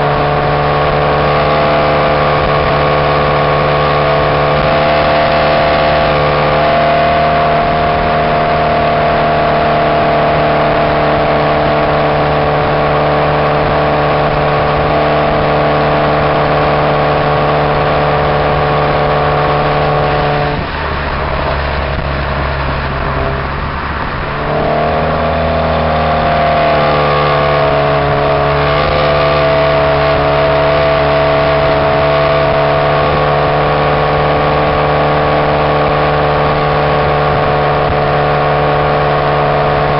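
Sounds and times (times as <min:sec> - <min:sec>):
car exhaust while driving: 0:00.0 - 0:39.9.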